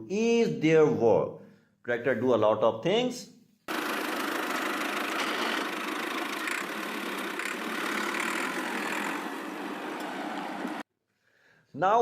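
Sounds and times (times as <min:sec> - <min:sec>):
tractor engine running: 0:03.7 - 0:10.8.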